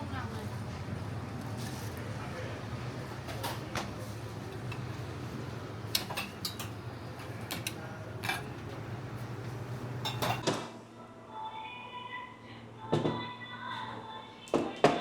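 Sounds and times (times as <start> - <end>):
dishes and cutlery clinking: 5.9 - 10.4.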